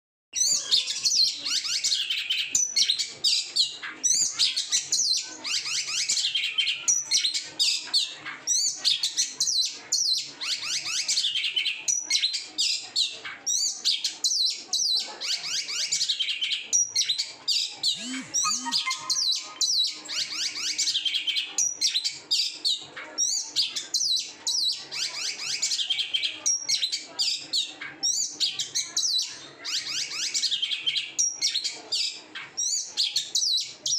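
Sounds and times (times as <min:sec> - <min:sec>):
songbird singing whistled phrases: 0:17.9 - 0:21.5.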